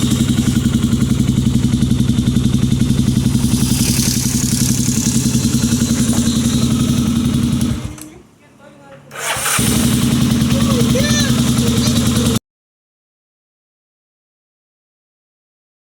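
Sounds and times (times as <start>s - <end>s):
motorcycle engine idling: 0.0s - 8.0s, 9.1s - 12.4s.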